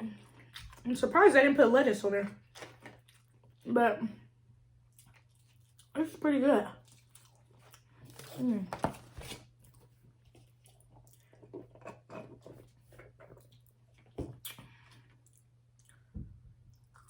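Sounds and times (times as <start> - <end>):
person chewing food: 0.1 - 0.9, 2.4 - 3.6, 4.7 - 6.0, 6.8 - 17.0.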